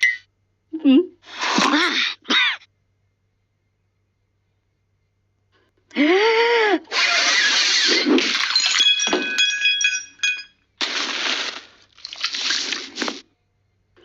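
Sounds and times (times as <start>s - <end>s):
cartoon glass smashing: 7.4s - 13.0s.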